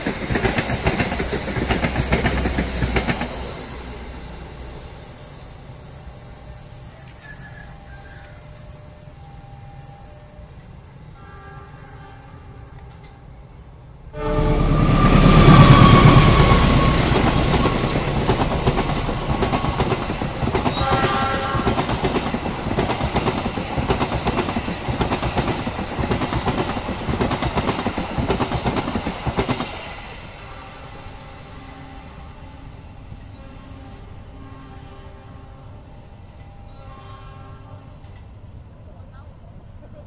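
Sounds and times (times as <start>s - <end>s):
train wheels clickety-clack: 0.0s - 4.2s, 14.8s - 31.4s
locomotive rushing past: 0.0s - 11.0s, 14.0s - 34.4s.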